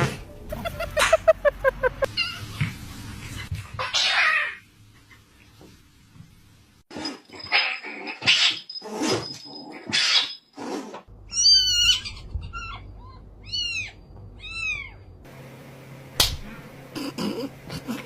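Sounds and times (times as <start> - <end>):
cat meowing: 11.3 - 15.1.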